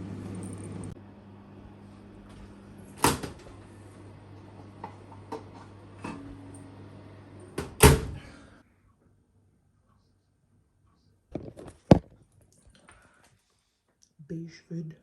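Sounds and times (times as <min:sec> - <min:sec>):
steady low hum: 0:00.0 - 0:08.9
air fryer clunk: 0:02.9 - 0:03.6, 0:04.6 - 0:06.5, 0:07.5 - 0:08.3.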